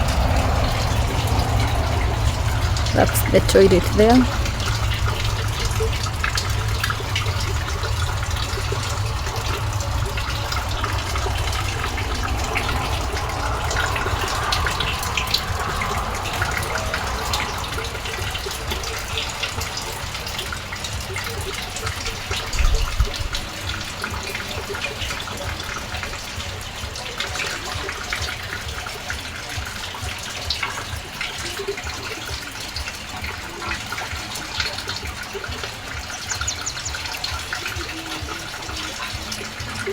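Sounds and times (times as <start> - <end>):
low rumble on microphone: 0.0 - 3.0, 4.2 - 23.9
steady rain falling: 0.0 - 39.9
water running and splashing: 0.0 - 39.9.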